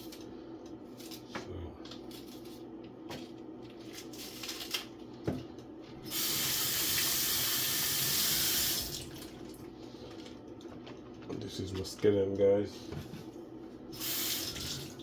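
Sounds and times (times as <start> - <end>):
tap water running: 6.0 - 9.6, 13.9 - 15.0.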